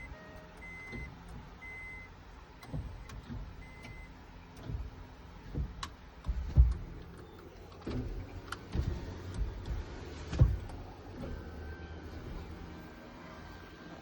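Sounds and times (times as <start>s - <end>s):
low thumps: 7.8s - 11.5s.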